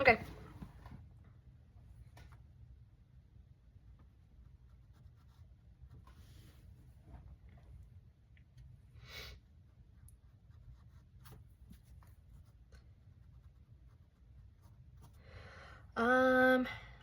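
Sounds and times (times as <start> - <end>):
low room hum: 0.0 - 17.0
paintbrush strokes on canvas: 4.0 - 7.1, 9.4 - 15.2.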